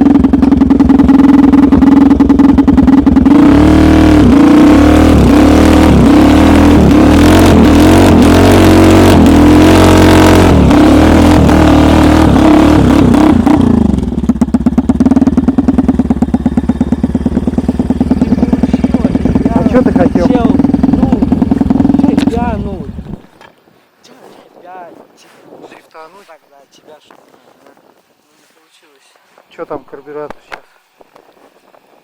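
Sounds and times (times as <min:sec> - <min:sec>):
snowmobile engine revving and idling: 0:00.0 - 0:23.3.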